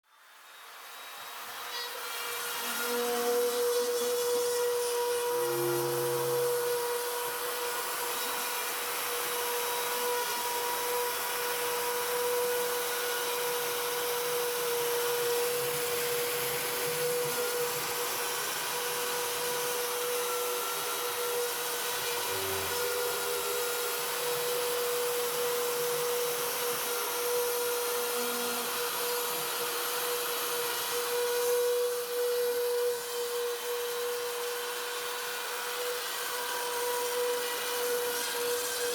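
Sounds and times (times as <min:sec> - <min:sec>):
electric motor humming: 0:05.2 - 0:07.7.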